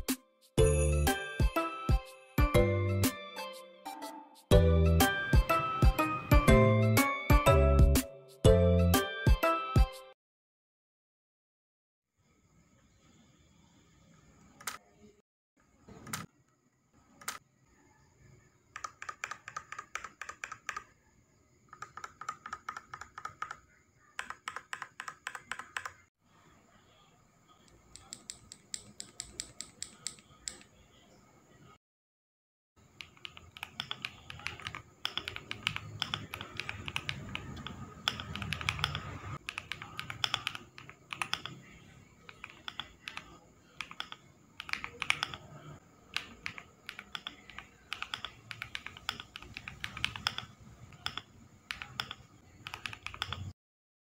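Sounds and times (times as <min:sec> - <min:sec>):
mechanical keyboard typing: 0:18.7 - 0:20.9, 0:21.7 - 0:23.6, 0:24.2 - 0:26.0, 0:28.0 - 0:30.7, 0:33.0 - 0:53.6.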